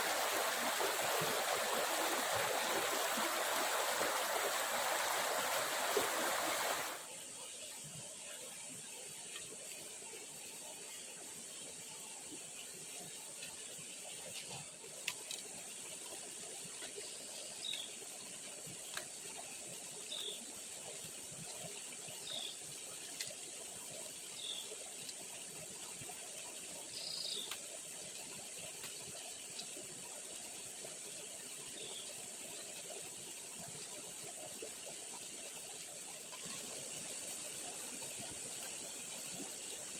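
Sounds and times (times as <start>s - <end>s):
rushing stream water: 0.0s - 7.1s, 8.1s - 39.9s
high insect drone: 0.0s - 7.6s.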